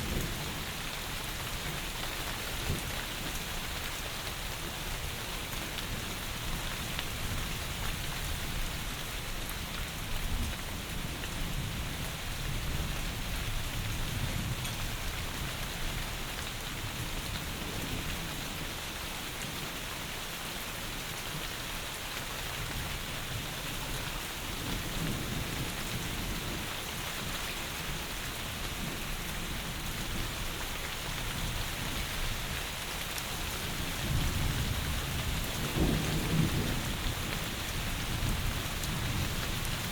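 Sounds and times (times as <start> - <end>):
heavy rain: 0.0 - 39.9
distant thunder rumbling: 34.0 - 39.4.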